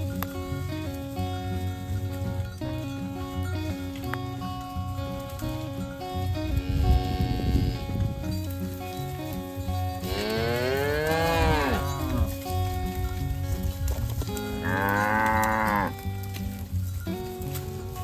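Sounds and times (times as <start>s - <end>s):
background music: 0.0s - 18.0s
cattle mooing: 6.5s - 8.1s, 10.0s - 12.4s, 14.4s - 16.1s.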